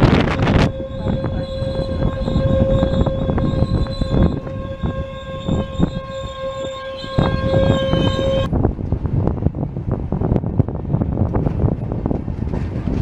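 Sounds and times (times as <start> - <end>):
steady high tone: 0.0 - 8.5.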